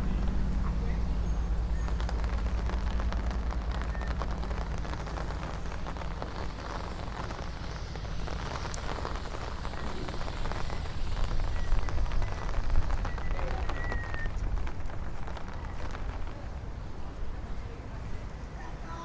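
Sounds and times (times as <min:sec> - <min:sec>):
low steady rumble: 0:00.0 - 0:19.0
rain falling on a street: 0:00.0 - 0:19.0.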